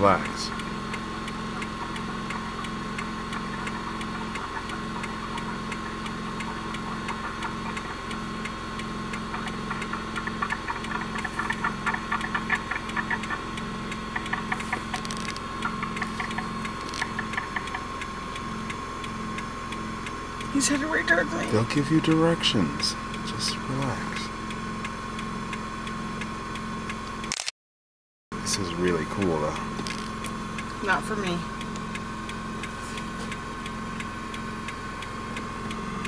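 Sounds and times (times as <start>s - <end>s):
car engines idling: 0.0s - 27.3s, 28.3s - 36.0s
quick ticks: 0.2s - 22.2s.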